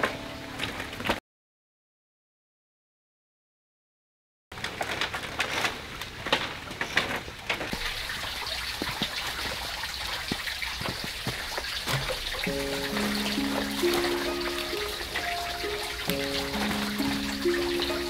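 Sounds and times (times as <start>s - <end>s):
water trickling and splashing: 7.7s - 18.0s.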